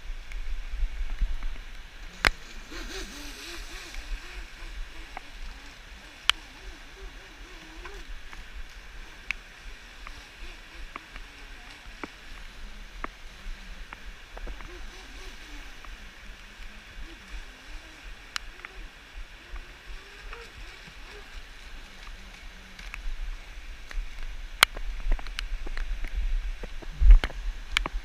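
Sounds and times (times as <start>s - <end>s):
river water rushing: 0.0s - 28.0s
toy boat motor whine: 2.2s - 8.2s, 9.3s - 21.4s.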